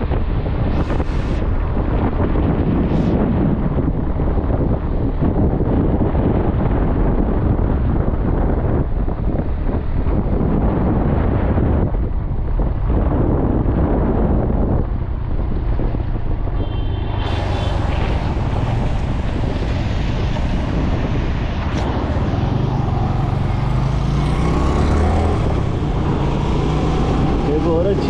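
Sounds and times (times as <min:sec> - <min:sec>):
wind buffeting microphone: 0:00.0 - 0:28.0
motorcycle engine: 0:15.2 - 0:28.0.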